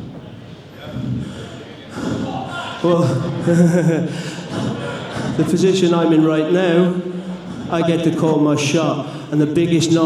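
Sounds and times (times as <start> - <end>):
man's voice holding long notes: 5.4 - 10.0.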